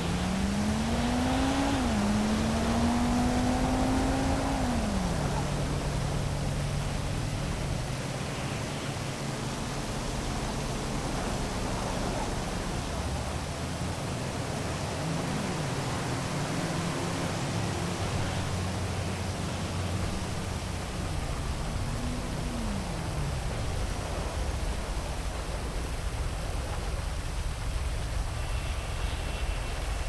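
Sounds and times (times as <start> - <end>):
low hum of traffic: 0.0 - 30.0
heavy rain falling: 10.1 - 30.0.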